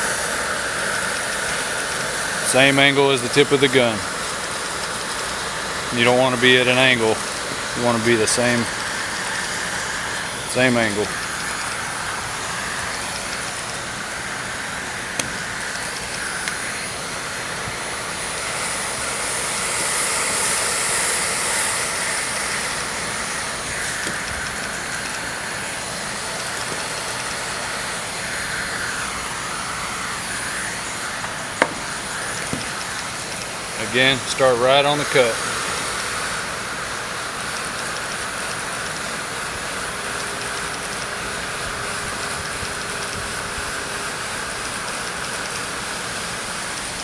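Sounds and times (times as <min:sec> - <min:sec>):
heat gun blowing: 0:00.0 - 0:47.0
sharp click: 0:15.2 - 0:15.8, 0:31.6 - 0:33.0.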